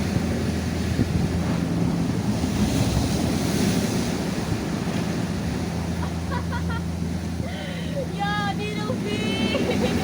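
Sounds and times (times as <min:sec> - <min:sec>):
wind buffeting microphone: 0:00.0 - 0:06.0
sea surf washing over rocks: 0:00.0 - 0:10.0.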